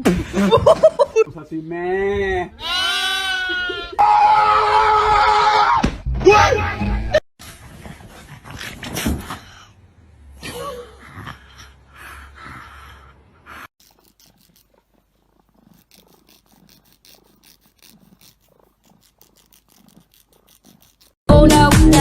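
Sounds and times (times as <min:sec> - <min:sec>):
cat purring: 0:13.9 - 0:21.2.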